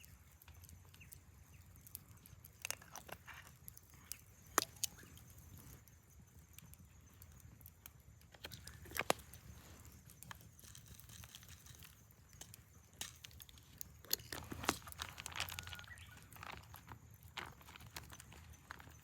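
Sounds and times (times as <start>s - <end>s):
small clicks and knocks: 1.8s - 5.0s, 7.2s - 9.5s
crinkling rustles: 1.8s - 5.9s, 8.3s - 19.0s.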